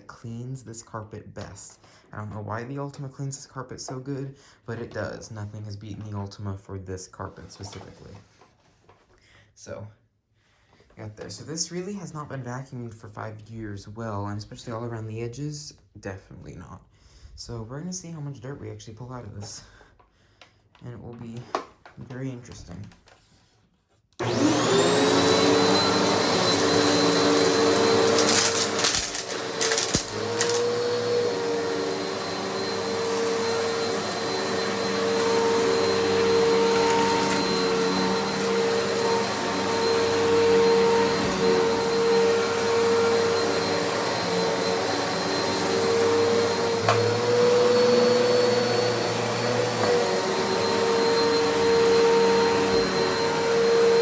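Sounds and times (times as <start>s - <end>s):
upright vacuum cleaner running: 24.2s - 54.0s.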